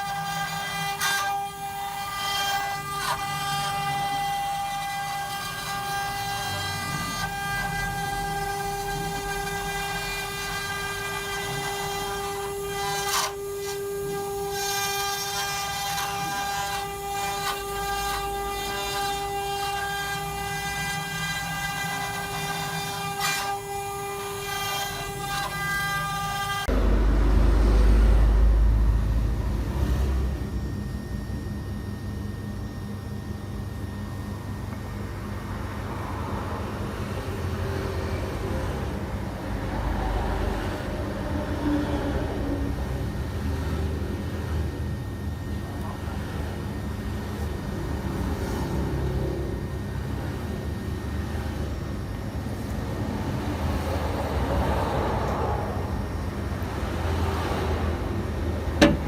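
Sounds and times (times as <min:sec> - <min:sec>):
machine spindle motor whine: 0:00.0 - 0:59.0
low rumbling noise: 0:26.7 - 0:30.8.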